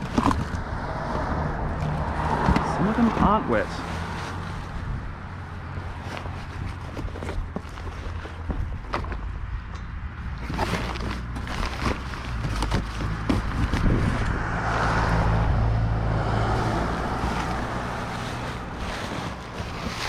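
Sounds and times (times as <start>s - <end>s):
broad rushing noise: 0.0s - 6.8s, 11.4s - 20.0s
wind rumbling on microphone: 0.0s - 20.0s.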